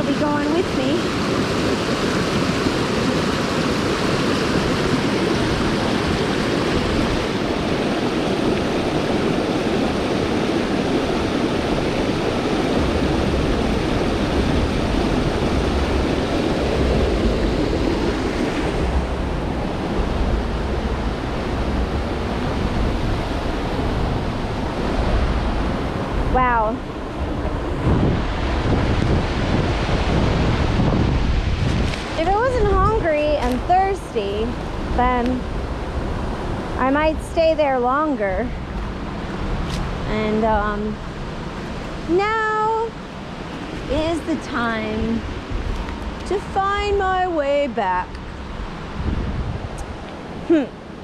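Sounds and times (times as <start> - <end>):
low rumble on microphone: 12.5 - 41.0, 47.9 - 50.7.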